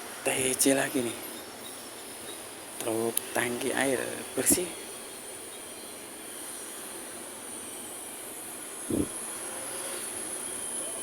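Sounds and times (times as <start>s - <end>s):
high insect whine: 4.4s - 10.9s.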